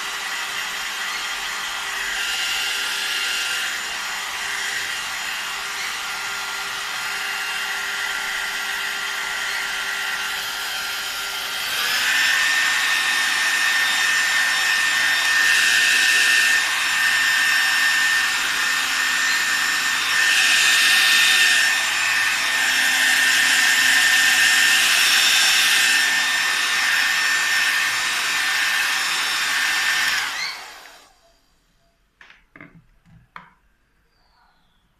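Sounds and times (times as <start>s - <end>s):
hair dryer running: 0.0s - 31.3s.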